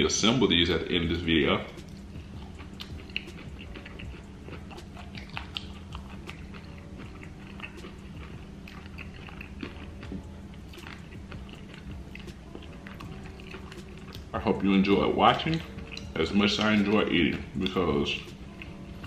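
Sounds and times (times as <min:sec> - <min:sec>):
steady low hum: 0:00.0 - 0:19.0
chewing and biting: 0:01.8 - 0:14.4, 0:15.3 - 0:18.8
wet clicking mouth sounds: 0:15.5 - 0:16.7.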